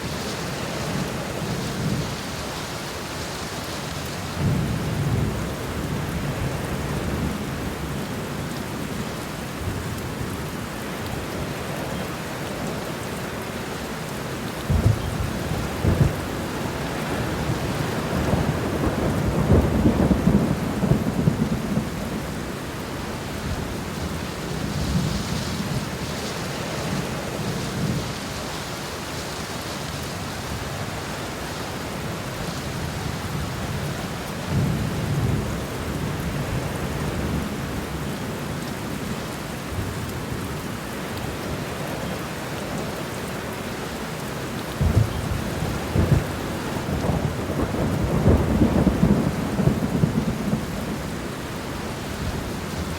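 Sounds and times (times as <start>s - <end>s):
steady rain falling: 0.0s - 52.9s
thunder rolling: 14.7s - 22.1s, 44.8s - 51.2s.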